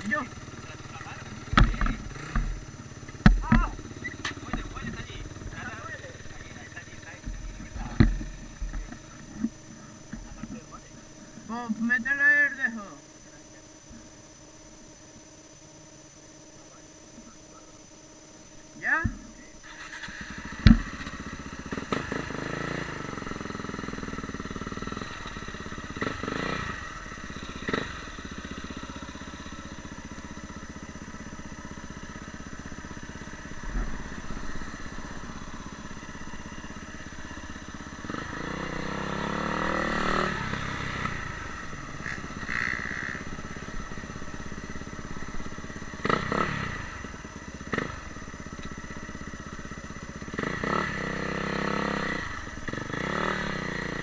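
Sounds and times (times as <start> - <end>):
motocross bike engine revving: 0.0 - 13.0, 18.4 - 54.0
sharp knocks and clatters: 1.4 - 4.7, 7.2 - 10.6.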